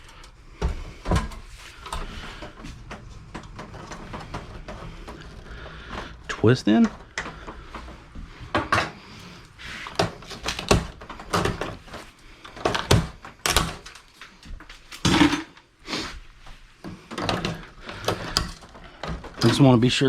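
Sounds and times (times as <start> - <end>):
computer case knocking and clattering: 0.6 - 9.2, 9.9 - 14.1.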